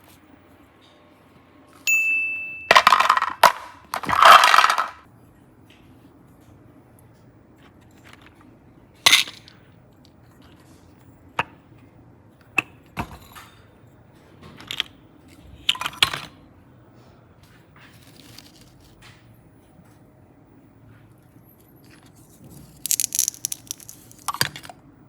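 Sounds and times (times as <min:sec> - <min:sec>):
small hard objects clicking: 0:22.6 - 0:24.7.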